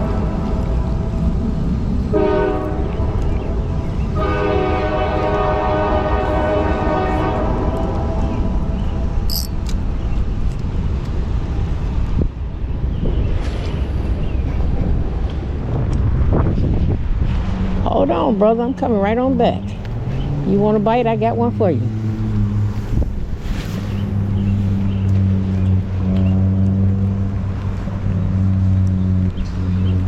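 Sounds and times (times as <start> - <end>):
train horn blasts: 2.1 - 9.2.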